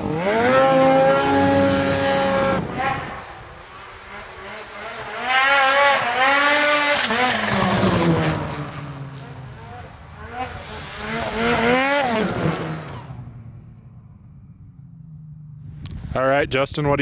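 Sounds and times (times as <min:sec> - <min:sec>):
snowmobile engine revving: 0:00.0 - 0:14.3.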